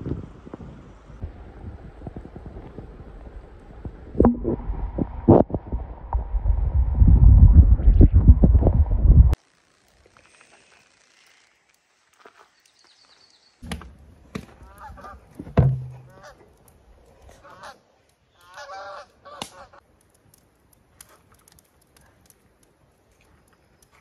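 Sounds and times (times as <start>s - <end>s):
geese honking: 14.6s - 15.3s, 15.9s - 16.4s, 17.3s - 17.8s, 18.4s - 19.8s
sharp knocks: 15.5s - 16.2s.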